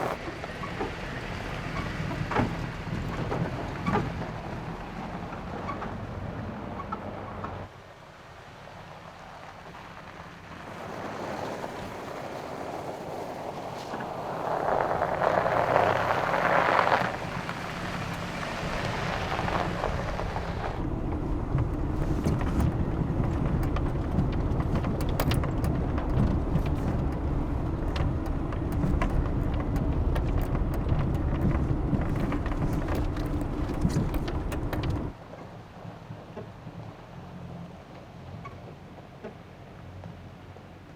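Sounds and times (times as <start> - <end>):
engine and tyre rumble: 0.0 - 40.9
tyres crackling over gravel: 8.7 - 36.2.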